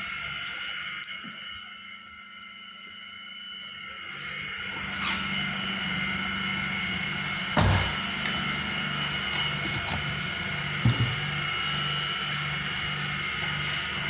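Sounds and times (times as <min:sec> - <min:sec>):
machine whine: 0:00.0 - 0:14.0
pulsing low hum: 0:00.0 - 0:14.0
thuds: 0:07.6 - 0:08.4, 0:10.8 - 0:11.4.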